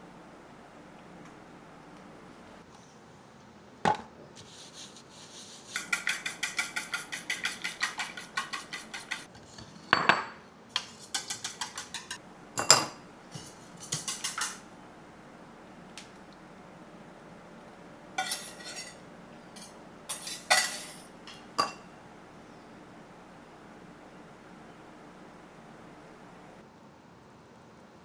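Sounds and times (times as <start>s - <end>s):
metal utensil clinking against bowl: 5.8s - 9.3s, 10.8s - 14.7s, 18.2s - 21.9s
dish knocking: 11.2s - 14.6s, 19.6s - 21.9s.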